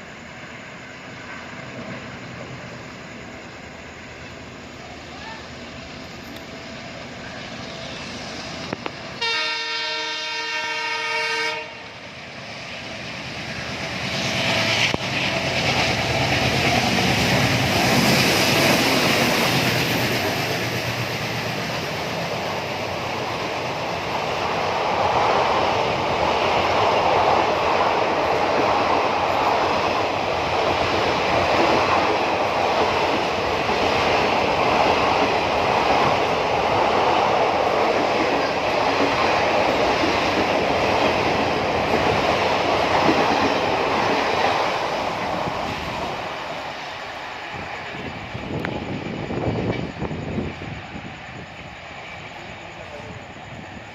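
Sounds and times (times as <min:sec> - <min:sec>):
train wheels on rails: 0:00.0 - 0:53.9
locomotive horn: 0:09.2 - 0:11.9.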